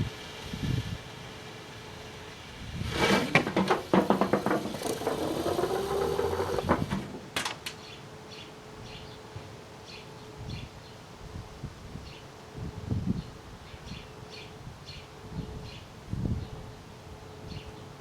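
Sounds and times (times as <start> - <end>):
fireworks crackling and hissing: 0.0 - 7.0.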